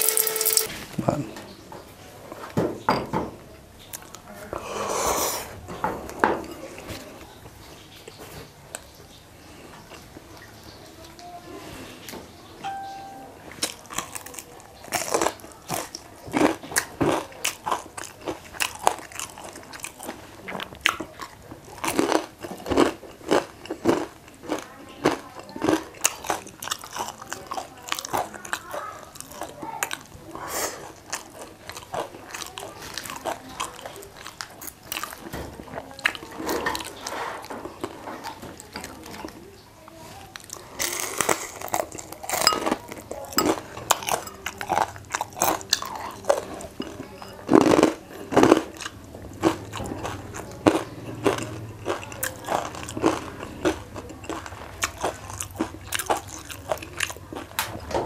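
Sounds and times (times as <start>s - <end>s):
crunching and chewing fried chicken: 13.5s - 58.0s.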